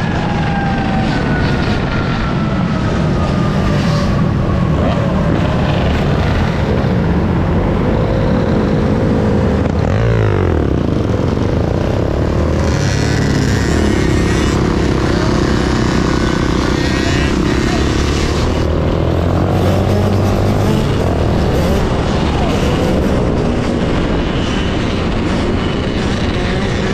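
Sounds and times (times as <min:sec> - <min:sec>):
motorbike engine: 0:00.0 - 0:26.9
wind and road noise: 0:00.0 - 0:26.9.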